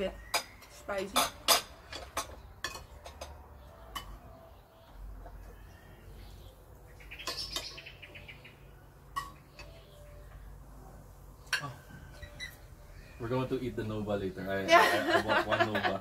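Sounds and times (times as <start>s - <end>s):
cutlery clinking against plates: 0.2s - 4.4s, 7.2s - 7.8s, 9.1s - 9.8s, 11.4s - 12.6s.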